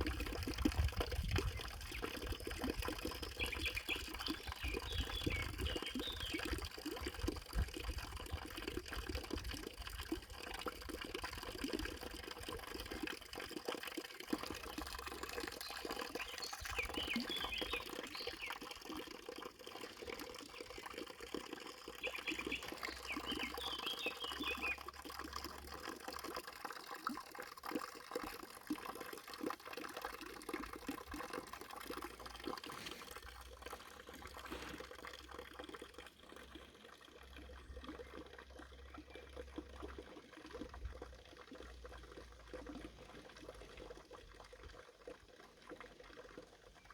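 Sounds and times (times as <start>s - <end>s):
water trickling and splashing: 0.0s - 46.9s.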